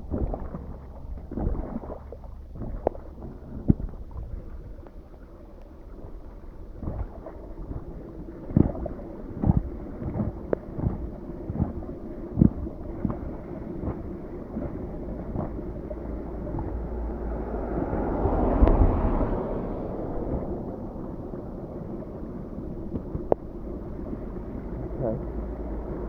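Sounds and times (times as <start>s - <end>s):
runoff water flowing: 0.0s - 26.0s
wind buffeting microphone: 0.0s - 26.0s
low thumps: 14.6s - 21.8s.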